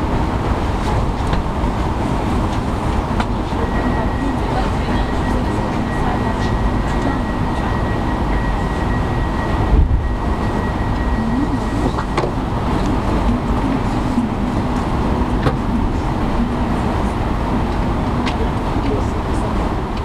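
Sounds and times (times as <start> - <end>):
passenger train rumbling: 0.0 - 20.0.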